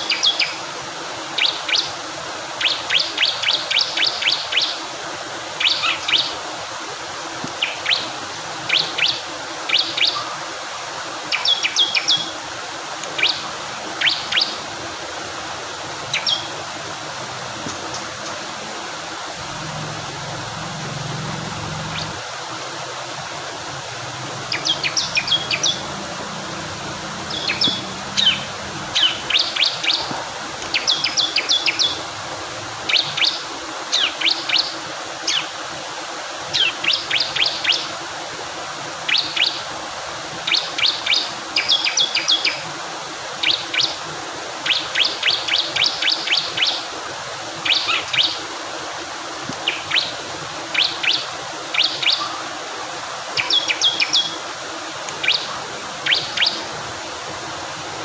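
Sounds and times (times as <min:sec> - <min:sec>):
flowing water: 0:00.0 - 0:58.0
bird chirping: 0:16.1 - 0:16.6, 0:19.4 - 0:22.2, 0:24.4 - 0:30.0, 0:55.2 - 0:56.6.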